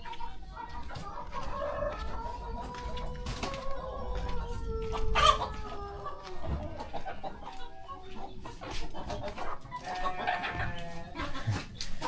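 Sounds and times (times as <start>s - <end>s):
chickens clucking: 0.0s - 12.0s
loud chicken call: 1.5s - 6.6s.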